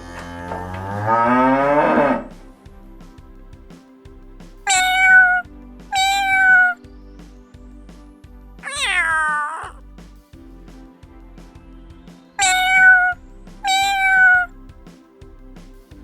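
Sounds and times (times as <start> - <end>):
soft background music: 0.0 - 16.0
cat meowing: 4.7 - 6.8, 8.6 - 9.8, 12.4 - 14.5.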